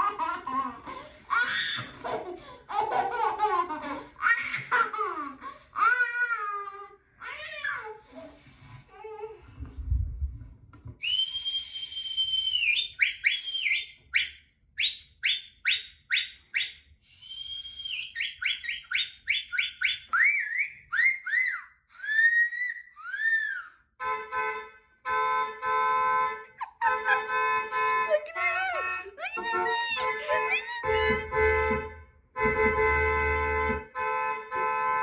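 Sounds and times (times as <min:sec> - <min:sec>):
shrill whistle: 0:11.0 - 0:23.9, 0:28.4 - 0:31.5.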